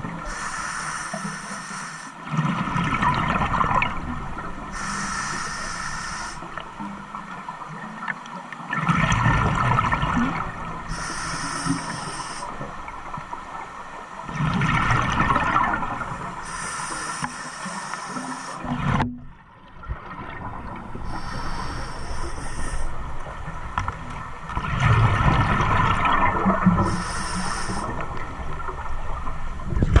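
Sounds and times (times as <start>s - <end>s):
hiss: 0.2s - 2.2s, 4.7s - 6.6s, 10.9s - 12.6s, 16.4s - 18.7s, 21.0s - 23.0s, 26.8s - 28.0s.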